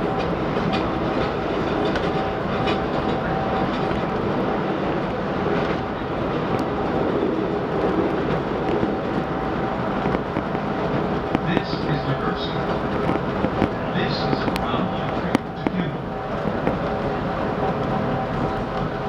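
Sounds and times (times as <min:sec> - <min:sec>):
train wheels and motors rumbling: 0:00.0 - 0:19.0
faint clicks: 0:12.9 - 0:15.8.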